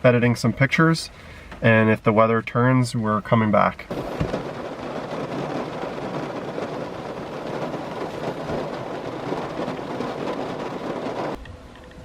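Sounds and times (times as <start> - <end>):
heavy rain on a car roof: 3.9 - 11.4.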